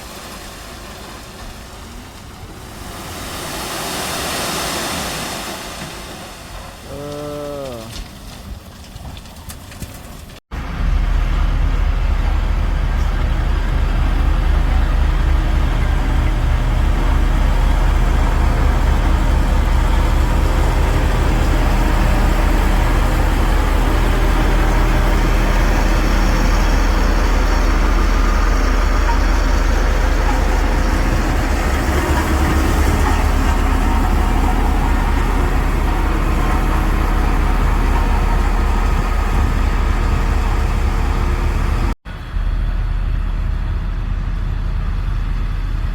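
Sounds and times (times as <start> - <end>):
heavy machine diesel engine running: 10.5 - 45.9.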